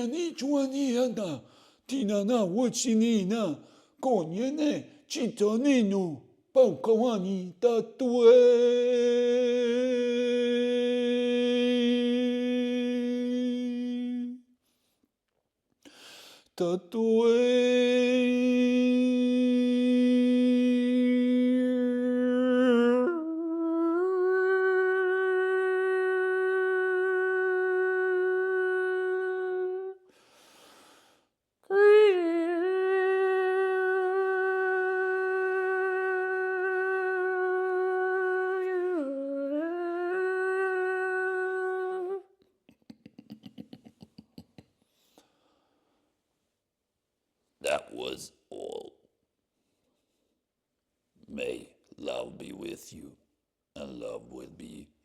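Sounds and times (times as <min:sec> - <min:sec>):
person humming long notes: 0:18.1 - 0:30.0, 0:31.7 - 0:42.3.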